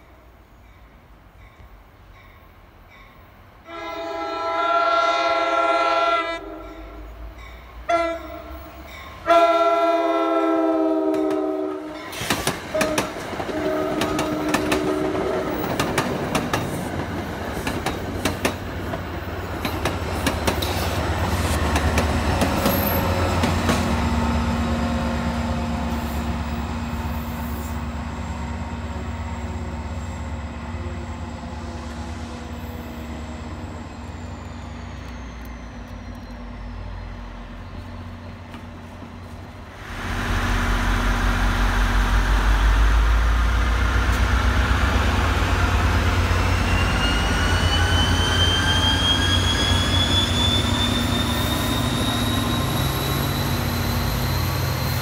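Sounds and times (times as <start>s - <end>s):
train horn blasts: 3.6s - 7.2s, 7.8s - 15.7s
diesel locomotive rumble: 6.4s - 55.0s
train wheels clicking on rails: 11.0s - 28.0s, 34.1s - 48.2s.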